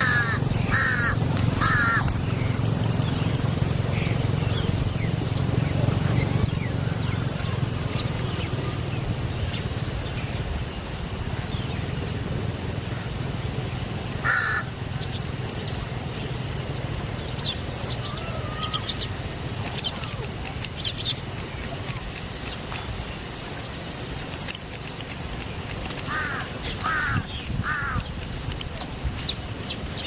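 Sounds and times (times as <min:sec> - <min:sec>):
harsh bird call: 0:00.0 - 0:02.6, 0:14.2 - 0:14.7, 0:17.8 - 0:19.2
birds chirping: 0:00.0 - 0:30.0.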